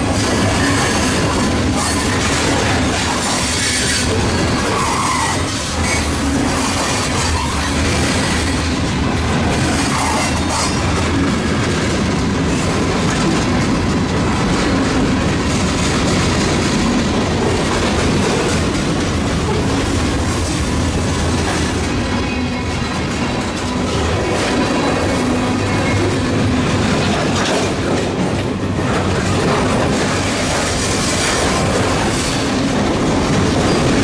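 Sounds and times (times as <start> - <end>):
freight train wheels rumbling on rails: 0.0 - 34.0.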